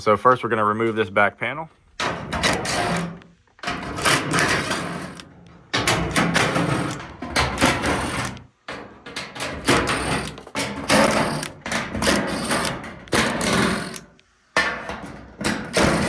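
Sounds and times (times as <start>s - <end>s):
power drill running: 2.4s - 3.2s, 4.0s - 5.2s, 6.4s - 7.0s, 7.7s - 8.4s, 9.6s - 14.0s, 15.7s - 16.0s.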